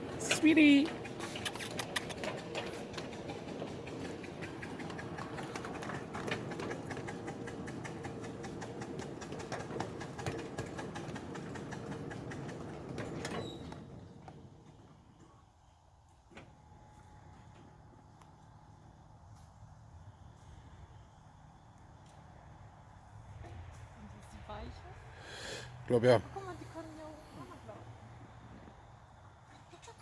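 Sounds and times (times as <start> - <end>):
miniature steam train rumbling: 0.0 - 19.1, 23.3 - 30.0.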